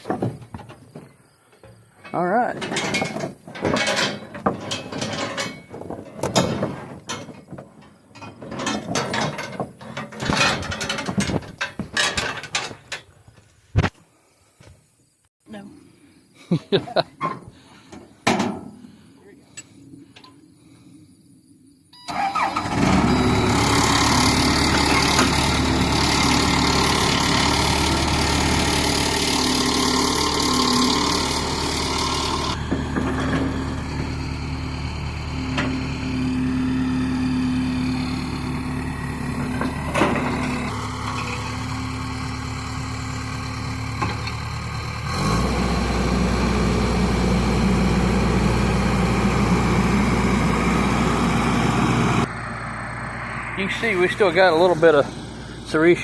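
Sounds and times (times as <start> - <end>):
vehicle engine cranking and running: 22.1 - 56.0.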